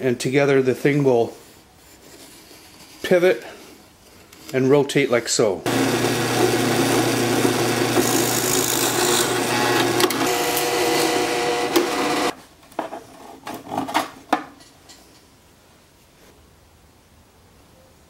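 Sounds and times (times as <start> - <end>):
drill press motor humming: 5.7 - 12.3.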